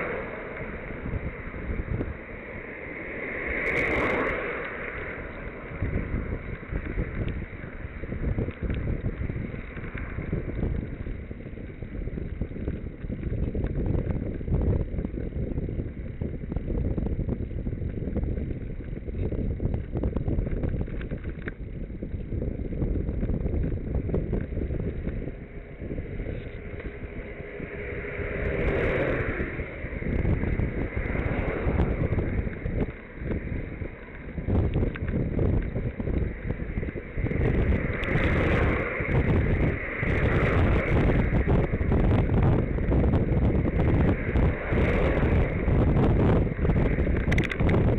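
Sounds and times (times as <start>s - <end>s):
wind buffeting microphone: 0.0s - 47.9s
steady pitched hum: 22.0s - 47.9s.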